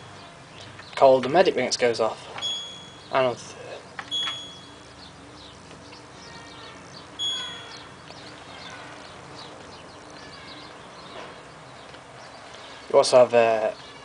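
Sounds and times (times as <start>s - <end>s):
faint bird chirping: 0.0s - 14.0s
washing machine beeps: 2.4s - 3.2s, 4.1s - 5.0s, 7.2s - 7.8s.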